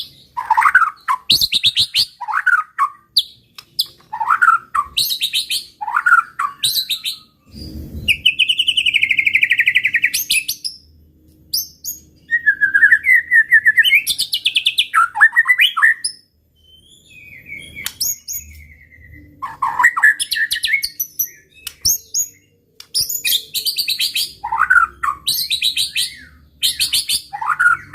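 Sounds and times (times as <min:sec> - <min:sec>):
songbird singing whistles and trills: 0:00.0 - 0:27.9.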